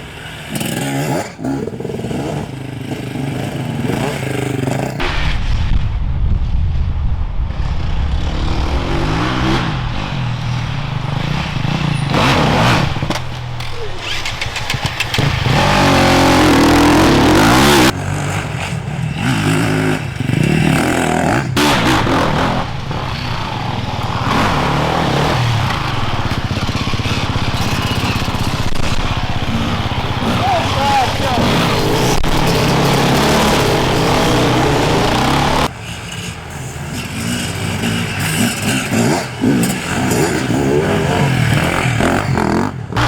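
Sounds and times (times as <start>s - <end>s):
motorcycle engines revving: 0.0s - 5.1s, 7.6s - 43.0s
rush of noise: 4.8s - 43.0s.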